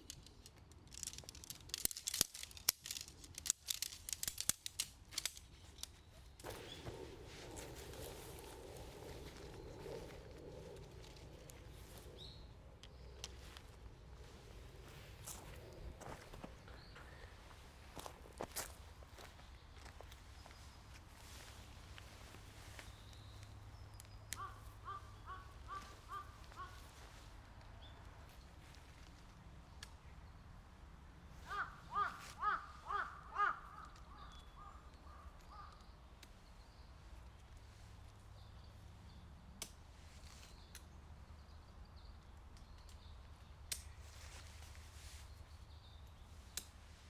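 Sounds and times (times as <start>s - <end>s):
sharp clicks: 0.0s - 6.6s
crow cawing: 24.4s - 27.0s, 31.4s - 35.8s.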